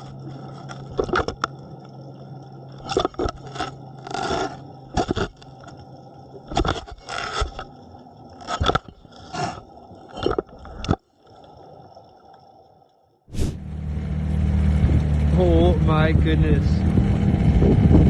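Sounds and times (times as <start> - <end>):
teeth scraping and crunching camera: 0.0 - 1.5, 2.8 - 5.8, 6.5 - 7.7, 8.4 - 11.0.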